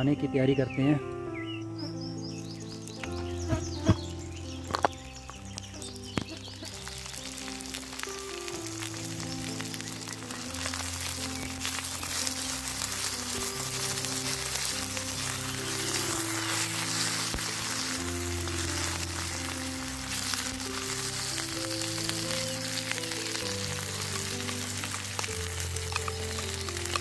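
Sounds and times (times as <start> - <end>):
soft background music: 0.0 - 27.0
vegetables sizzling in wok: 2.5 - 27.0
wooden spatula stirring: 5.9 - 27.0.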